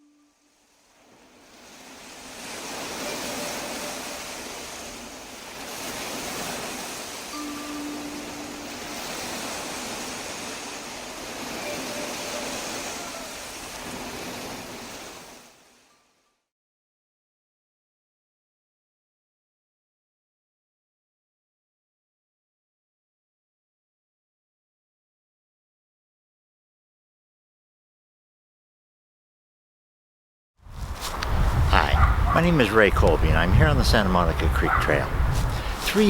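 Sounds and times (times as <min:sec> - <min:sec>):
surf-like wash of noise: 0:00.1 - 0:15.7, 0:31.0 - 0:36.0
faint held chime tones: 0:02.9 - 0:04.5, 0:07.3 - 0:09.4, 0:10.6 - 0:13.4.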